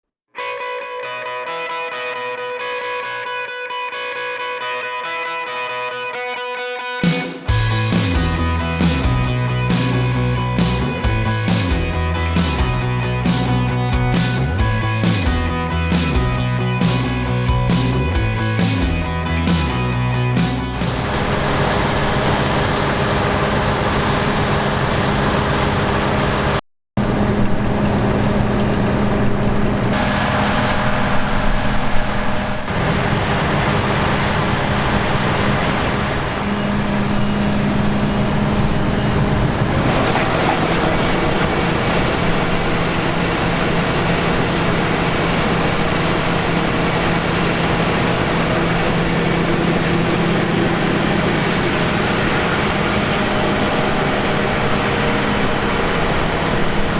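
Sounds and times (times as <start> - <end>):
harvest machinery running: 7.5 - 15.3, 20.4 - 56.9.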